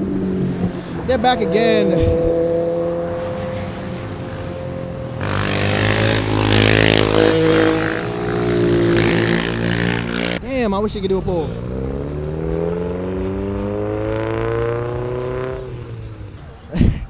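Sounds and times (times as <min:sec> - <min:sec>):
car driving past: 0:01.7 - 0:10.5.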